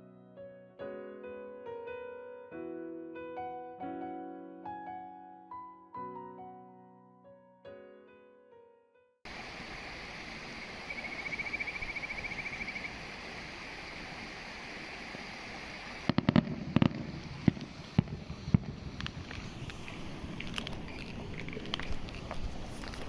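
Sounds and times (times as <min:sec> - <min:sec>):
steady outdoor hiss: 0:09.3 - 0:23.0.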